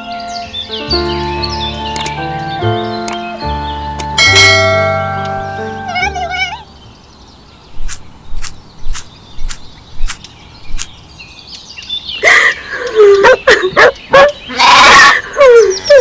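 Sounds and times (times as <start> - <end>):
sharp clicks: 2.0 - 2.2, 7.7 - 11.0.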